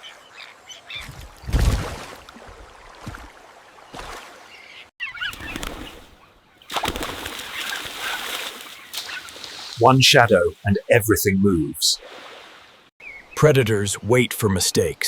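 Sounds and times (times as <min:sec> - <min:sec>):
birds chirping: 0:04.5 - 0:12.0
forest ambience hiss: 0:07.4 - 0:11.0.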